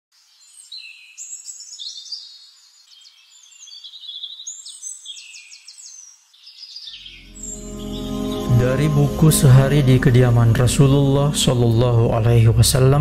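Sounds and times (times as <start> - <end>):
birdsong chirps and trills: 0.2 - 9.1.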